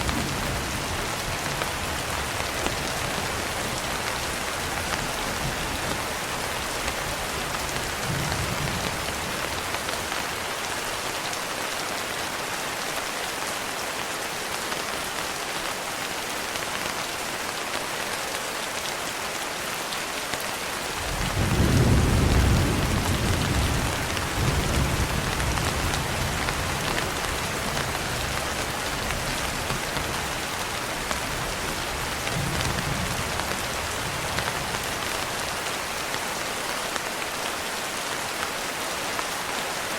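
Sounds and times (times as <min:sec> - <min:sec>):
rain pattering on a window: 0:00.0 - 0:39.9
thunder rumbling: 0:21.0 - 0:30.2.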